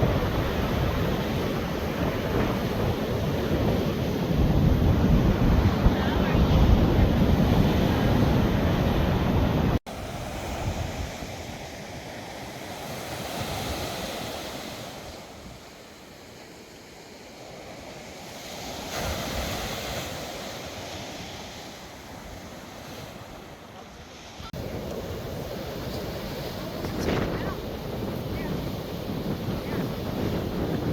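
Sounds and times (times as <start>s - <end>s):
wind rumble on microphone: 0.0s - 9.8s, 24.6s - 30.9s
surf washing onto shore: 0.0s - 30.9s.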